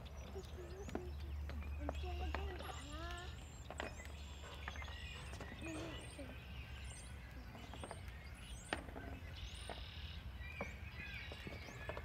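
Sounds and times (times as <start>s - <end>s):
small birds chirping and whistling: 0.0s - 12.0s.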